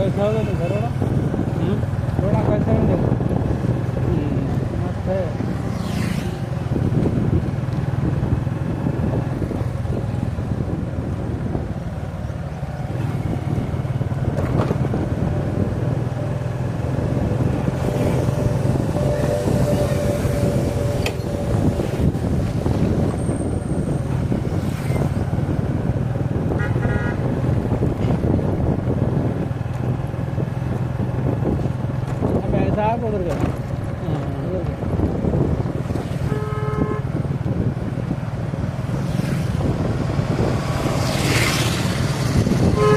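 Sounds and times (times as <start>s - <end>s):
road and wind noise: 0.0s - 42.9s
vehicle horn: 26.5s - 27.3s, 36.2s - 37.2s, 42.7s - 42.9s.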